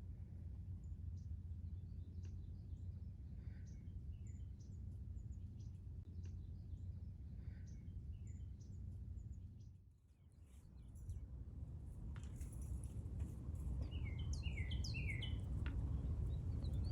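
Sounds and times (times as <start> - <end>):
low background rumble: 0.0 - 16.9
small birds chirping: 13.8 - 16.9.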